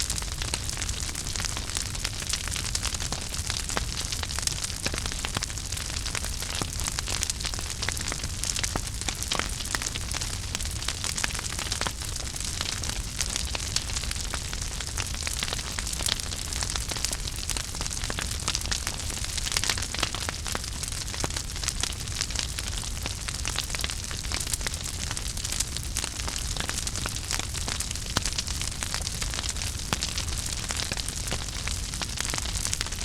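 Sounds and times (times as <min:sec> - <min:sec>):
fire crackling and popping: 0:00.0 - 0:33.0
wood fire hissing: 0:00.0 - 0:33.0.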